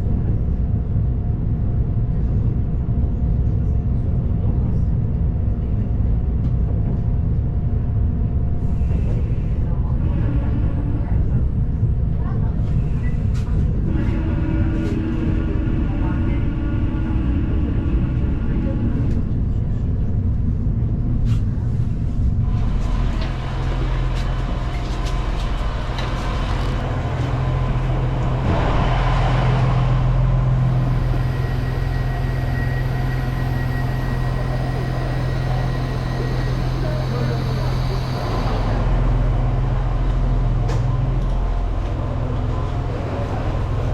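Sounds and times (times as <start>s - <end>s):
vehicle engine humming: 22.4s - 43.9s.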